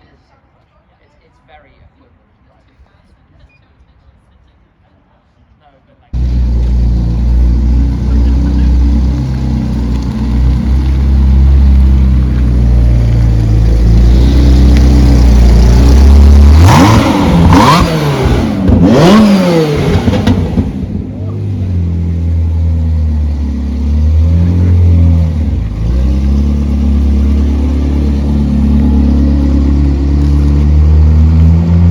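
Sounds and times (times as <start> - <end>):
car engine revving with cracks: 6.2 - 31.9
engine running at low revs: 6.2 - 31.9.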